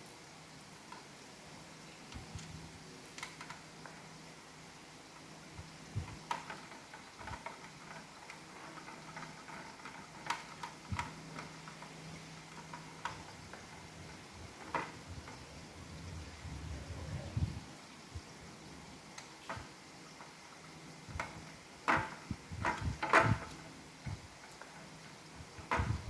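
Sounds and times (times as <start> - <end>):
faint low hum: 0.0 - 26.0
plastic parts clicking and tapping: 2.1 - 4.1, 6.1 - 15.4, 21.1 - 23.7.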